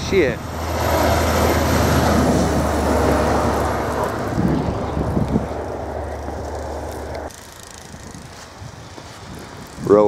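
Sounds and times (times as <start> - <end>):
vehicle driving past on snow: 0.5 - 7.3.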